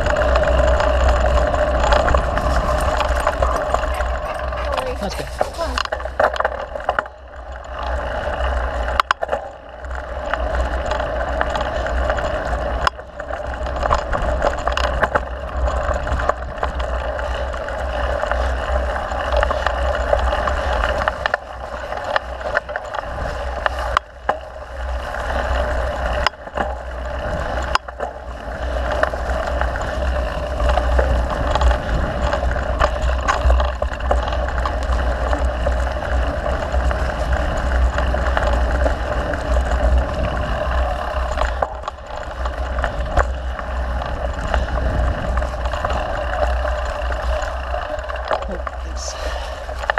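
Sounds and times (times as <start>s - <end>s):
tyres and wind rushing: 0.0s - 6.2s
bike knocking and rattling: 0.0s - 49.9s.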